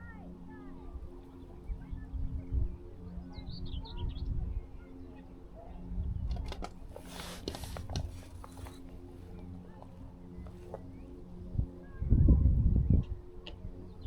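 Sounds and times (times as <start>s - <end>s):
low wind rumble: 0.0s - 14.0s
steady low hum: 0.0s - 14.0s
handling rustle: 6.3s - 11.0s.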